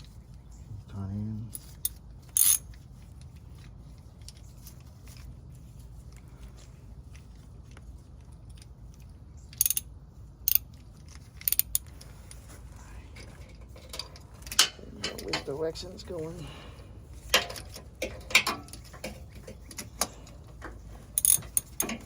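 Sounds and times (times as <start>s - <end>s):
steady low hum: 0.0s - 22.0s
metallic clicks of hand tools: 9.5s - 9.9s, 17.3s - 22.0s.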